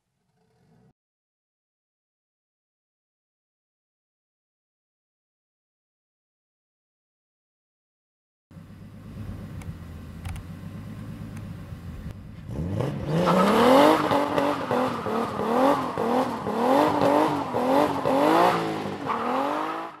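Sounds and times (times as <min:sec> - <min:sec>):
car engine idling: 0:08.5 - 0:12.5
car engine revving hard: 0:12.5 - 0:20.0
tyres spinning in burnout: 0:12.5 - 0:20.0.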